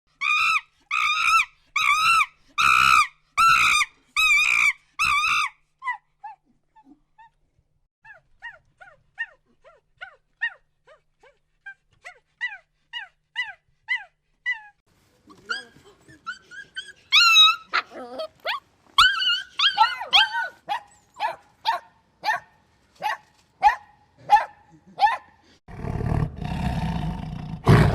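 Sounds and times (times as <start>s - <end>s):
dog whining: 15.4s - 21.3s
dog barking and yipping: 15.4s - 25.3s.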